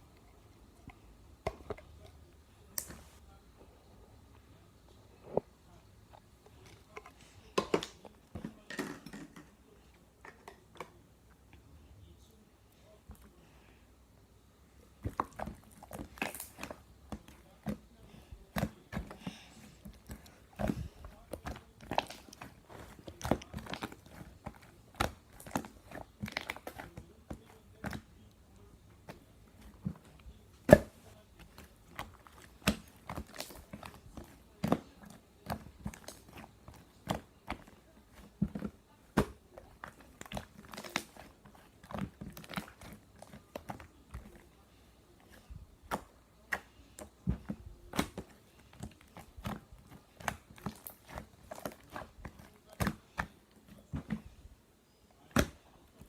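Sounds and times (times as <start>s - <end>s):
chewing and crunching: 15.0s - 28.4s, 48.5s - 53.1s.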